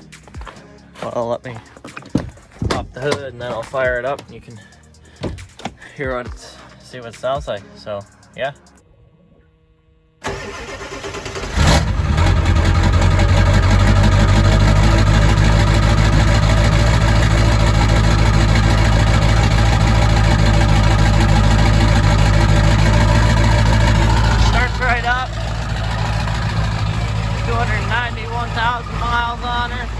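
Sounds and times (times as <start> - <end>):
diesel engine idling: 0.0 - 6.1, 10.2 - 29.9
starter motor cranking: 10.2 - 29.9.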